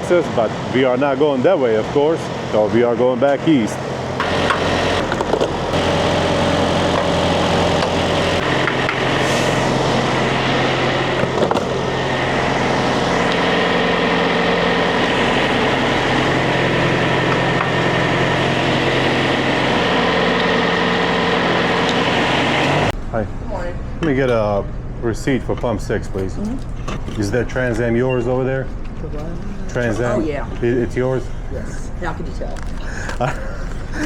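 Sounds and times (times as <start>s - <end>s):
diesel truck engine idling: 0.0s - 23.0s.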